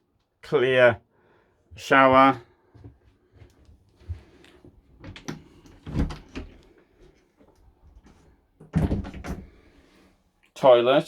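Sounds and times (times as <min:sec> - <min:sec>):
door clicks and knocks: 0:05.0 - 0:06.6, 0:08.6 - 0:09.5.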